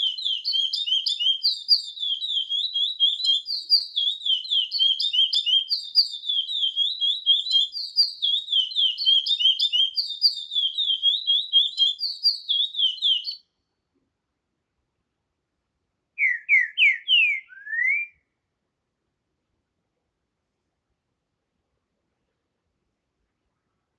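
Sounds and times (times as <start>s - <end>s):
bird chirping rapidly: 0.0s - 13.4s, 16.2s - 18.1s
bird whistling slurred notes: 0.0s - 13.4s, 16.2s - 18.2s.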